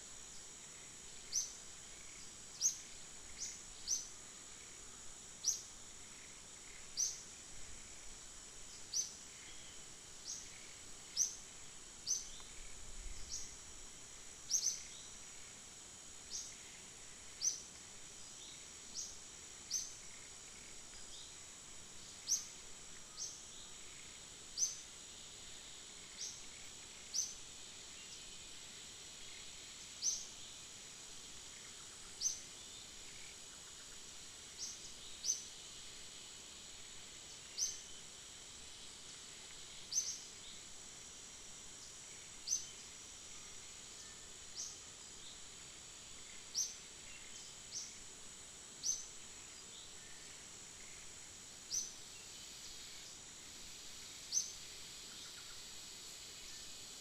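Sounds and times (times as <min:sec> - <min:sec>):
high-pitched insect drone: 0:00.0 - 0:57.0
small bird chirping: 0:01.2 - 0:04.1, 0:05.4 - 0:07.2, 0:12.0 - 0:13.6, 0:14.5 - 0:15.2, 0:16.3 - 0:17.7, 0:51.7 - 0:52.4.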